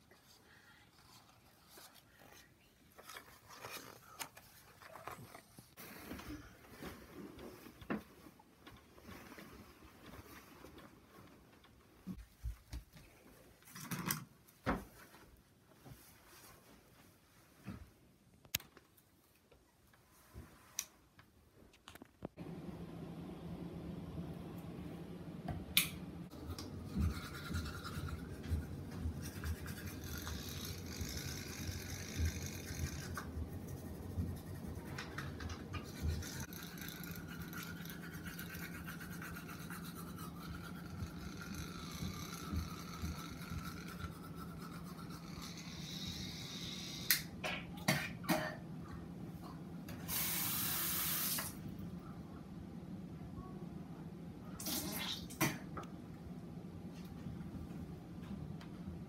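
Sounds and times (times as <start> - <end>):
toothbrush scrubbing: 26.3 - 47.0.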